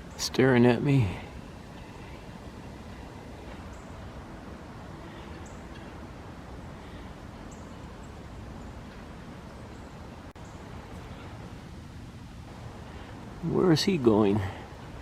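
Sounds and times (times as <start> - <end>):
low rumble and hiss: 0.0 - 15.0.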